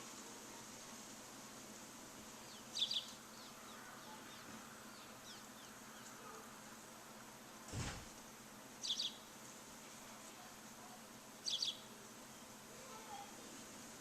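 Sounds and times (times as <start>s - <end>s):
faint outdoor hiss: 0.0s - 14.0s
small bird chirping: 2.4s - 6.2s, 8.8s - 9.3s, 11.4s - 13.2s.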